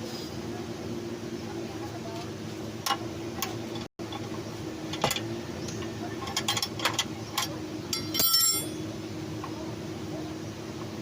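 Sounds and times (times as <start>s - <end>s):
steady low hum: 0.0s - 11.0s
metal tools clinking: 6.2s - 8.8s
metallic rattle ringing: 6.2s - 8.9s.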